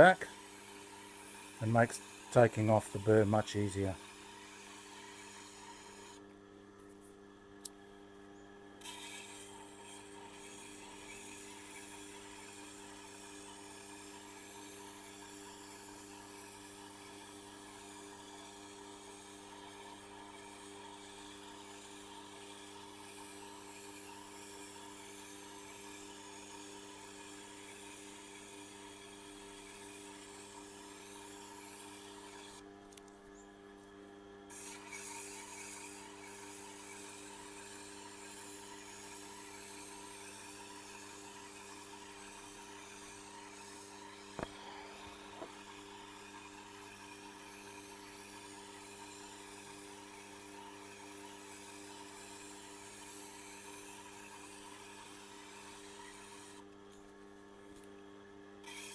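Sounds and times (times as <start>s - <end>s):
sharpening machine motor hum: 0.0s - 6.2s, 8.8s - 32.7s, 34.4s - 57.1s, 58.6s - 58.9s
knife rubbing against abrasive: 34.5s - 39.8s.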